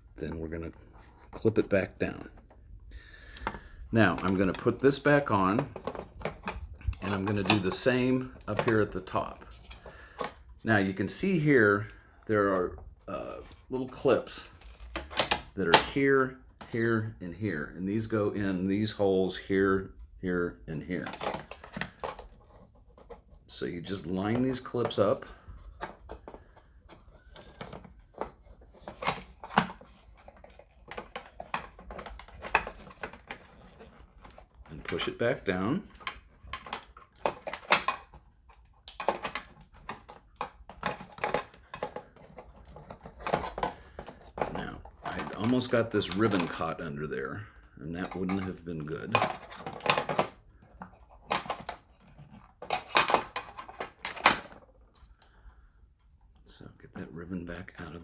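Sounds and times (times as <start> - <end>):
plastic clips clicking and knocking: 14.5 - 16.0, 24.3 - 35.1, 35.9 - 46.7, 48.0 - 54.7.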